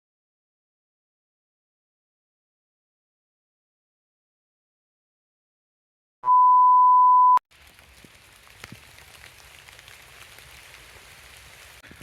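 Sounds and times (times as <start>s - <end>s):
electronic beep: 6.2s - 7.4s.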